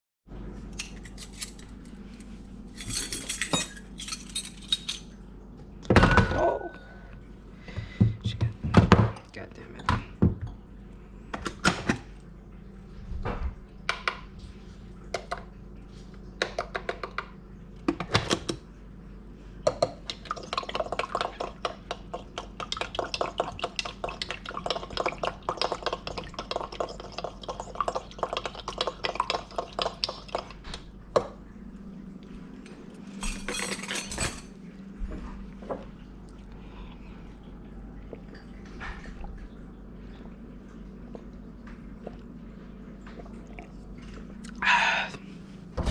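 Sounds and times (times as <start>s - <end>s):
dishes and utensils clattering: 2.7s - 5.2s, 33.2s - 34.6s.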